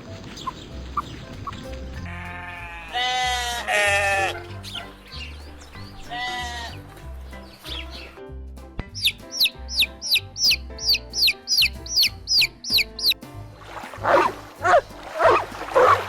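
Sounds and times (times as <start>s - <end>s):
background music: 0.0s - 16.0s
chicks peeping: 0.2s - 1.7s, 9.0s - 13.2s
drawn-out falling bird call: 9.0s - 13.2s.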